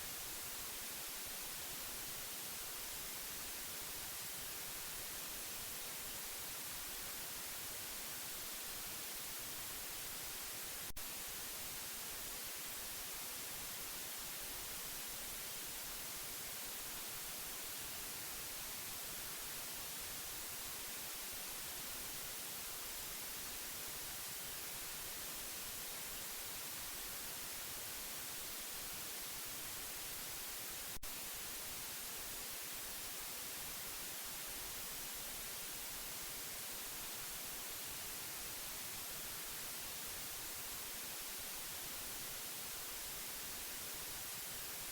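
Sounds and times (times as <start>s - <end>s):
steady white noise hiss: 0.0s - 44.9s.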